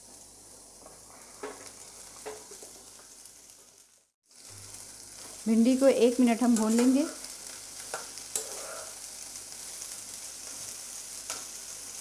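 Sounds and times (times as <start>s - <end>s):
okra sizzling in hot oil: 0.0s - 12.0s
metal spatula stirring: 7.9s - 9.0s.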